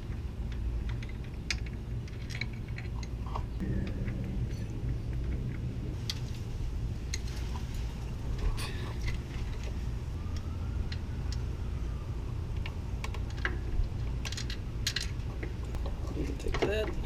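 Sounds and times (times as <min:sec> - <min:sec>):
steady low rumble: 0:00.0 - 0:17.0
faint rising and falling tone: 0:03.5 - 0:13.1.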